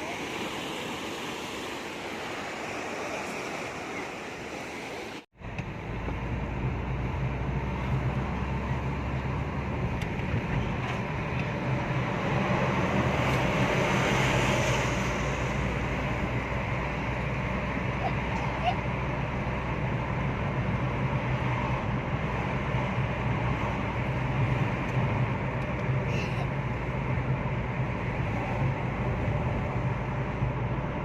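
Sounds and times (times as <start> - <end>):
sea waves washing on shore: 0.0 - 5.3.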